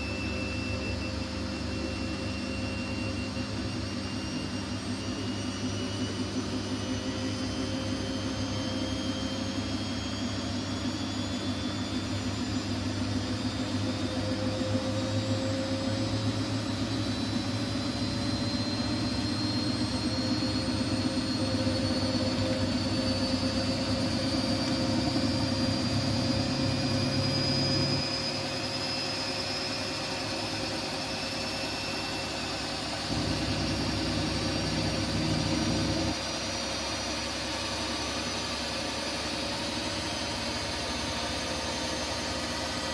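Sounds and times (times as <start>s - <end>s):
washing machine motor whine: 0.0s - 42.9s
washing drum running: 16.8s - 28.0s, 32.9s - 36.3s
low hum: 17.6s - 28.3s, 32.9s - 36.3s.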